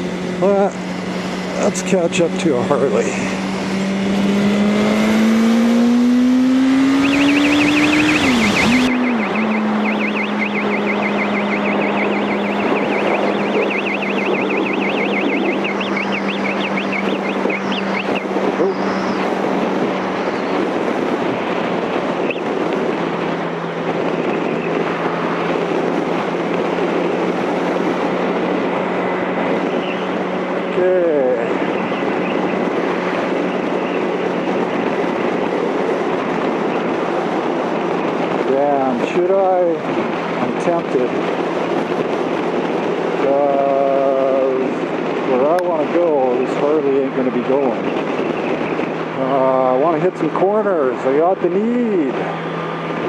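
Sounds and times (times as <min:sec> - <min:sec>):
motorcycle engine accelerating: 0:00.0 - 0:53.0
wind rush: 0:00.0 - 0:53.0
high electronic chirping: 0:06.7 - 0:19.2.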